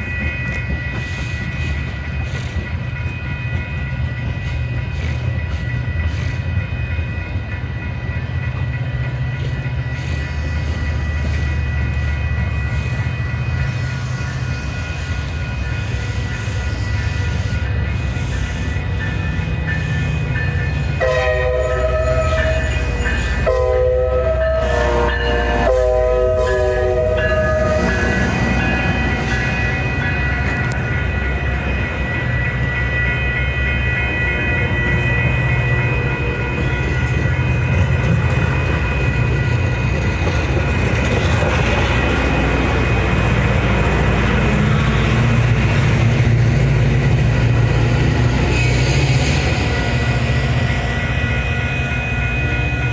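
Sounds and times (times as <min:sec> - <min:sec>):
train rumbling past: 0:00.0 - 0:52.9
locomotive horn blasts: 0:21.0 - 0:29.2.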